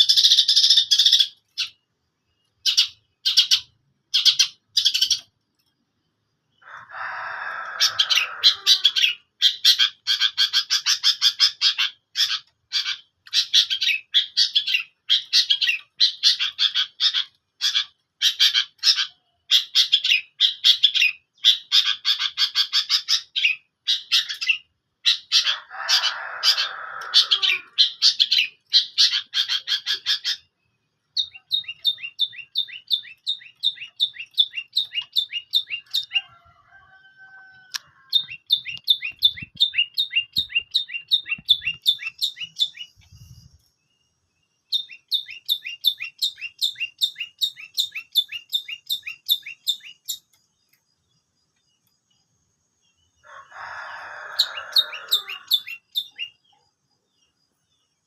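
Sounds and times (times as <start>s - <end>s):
repeated down-slurred bird notes: 0.0s - 36.3s, 38.1s - 53.0s
bird harsh rasping call: 6.6s - 30.5s, 53.2s - 56.3s
shrike chattering song: 7.8s - 36.3s, 37.7s - 43.6s.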